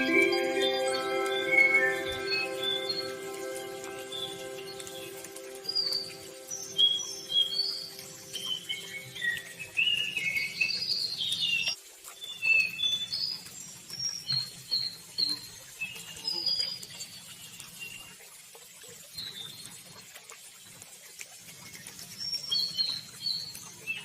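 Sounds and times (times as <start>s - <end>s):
river water rushing: 0.0s - 10.7s
songbirds chirping: 0.0s - 17.8s.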